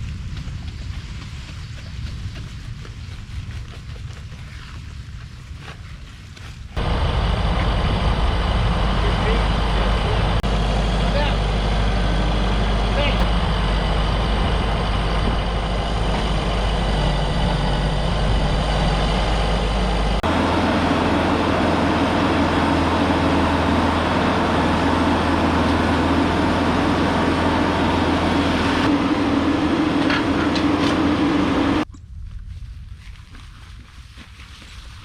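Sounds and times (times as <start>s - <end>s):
engine running: 6.8s - 31.9s.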